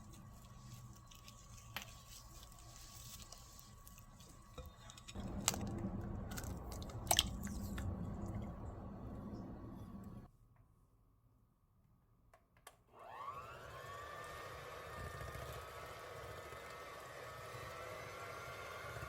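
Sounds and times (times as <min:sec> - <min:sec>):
squishy mixing of dough in bowl: 0:00.0 - 0:09.0.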